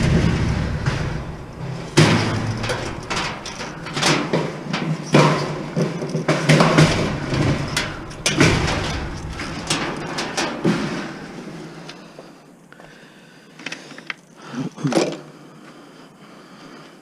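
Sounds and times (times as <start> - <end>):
metal knocks and clanks: 0.0 - 11.9.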